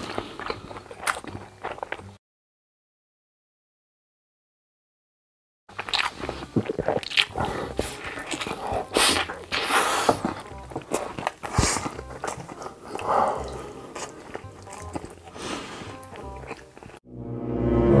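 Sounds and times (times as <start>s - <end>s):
man chewing and smacking: 0.0s - 2.2s, 5.7s - 17.0s.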